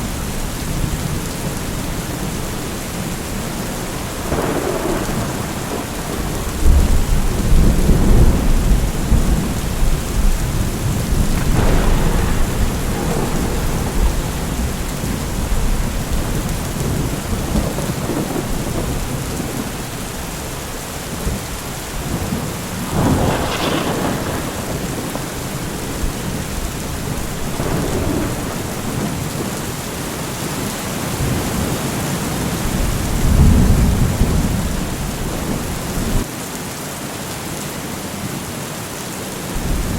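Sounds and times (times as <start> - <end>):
rolling thunder: 0.0 - 36.3, 39.6 - 39.9
heavy rain: 0.0 - 39.9
sharp thunder crack: 3.8 - 19.8, 22.0 - 29.9.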